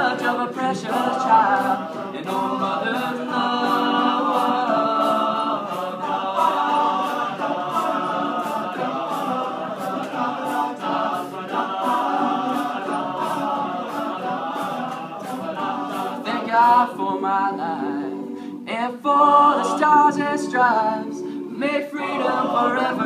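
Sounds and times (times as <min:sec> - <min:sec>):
steady beat: 0:00.0 - 0:17.6
vocal group singing in harmony: 0:00.0 - 0:23.0.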